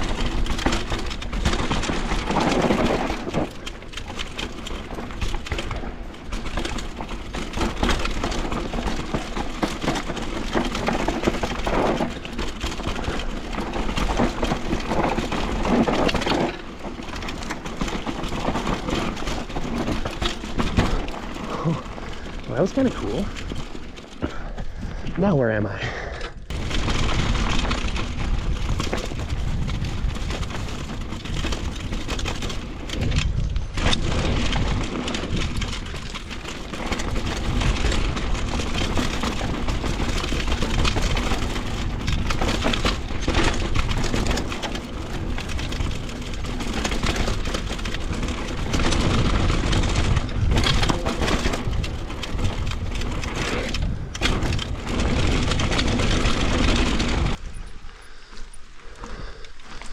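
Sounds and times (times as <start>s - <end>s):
bike rattling: 0.0s - 59.9s
bike tyres crunching over dirt: 0.0s - 59.9s
wind rumble on microphone: 26.4s - 57.9s.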